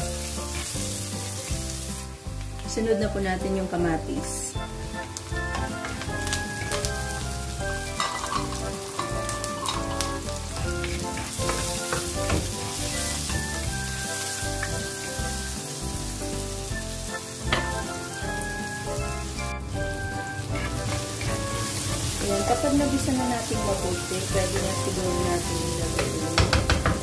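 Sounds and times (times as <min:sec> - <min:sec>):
vegetables sizzling in hot oil: 0:00.0 - 0:27.0
spatula scraping and tapping pan: 0:05.2 - 0:07.2, 0:07.8 - 0:13.7, 0:17.4 - 0:17.9.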